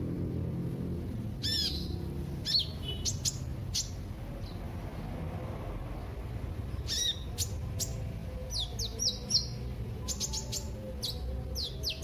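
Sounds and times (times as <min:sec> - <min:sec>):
sunbird chirping: 0:01.4 - 0:04.6, 0:06.7 - 0:12.0.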